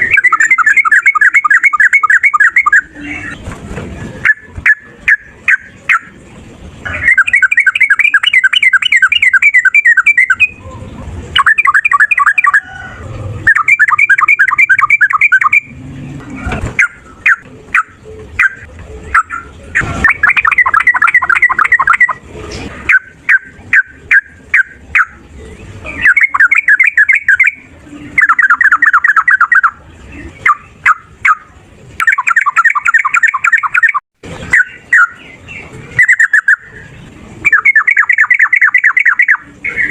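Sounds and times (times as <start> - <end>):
bird chattering trills: 0.0 - 3.5, 6.8 - 15.8, 16.8 - 22.2, 22.8 - 39.9
sharp bird chips: 16.8 - 22.2.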